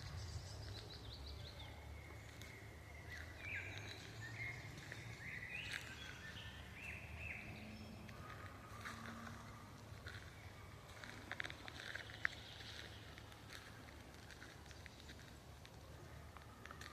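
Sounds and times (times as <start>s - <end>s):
forest birds singing: 0.0s - 16.9s
low rumble of wind: 0.0s - 16.9s.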